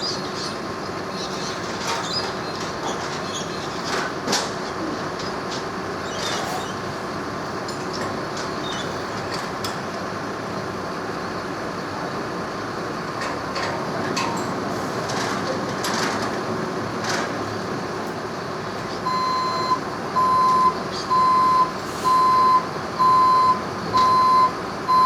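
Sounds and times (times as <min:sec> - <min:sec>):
train running on rails: 0:00.4 - 0:21.0.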